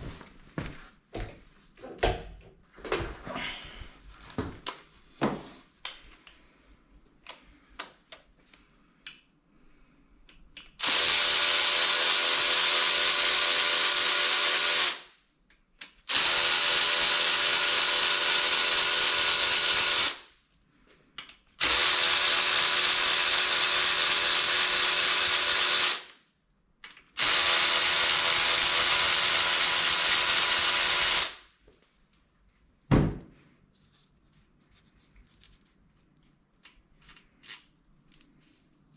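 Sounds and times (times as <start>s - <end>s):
clicks and knocks of parts handled: 10.2s - 10.8s, 21.0s - 21.6s, 26.8s - 27.2s, 35.1s - 38.9s
power drill motor running: 10.8s - 15.1s, 16.1s - 20.2s, 21.6s - 26.1s, 27.2s - 31.4s
thump: 32.9s - 33.3s.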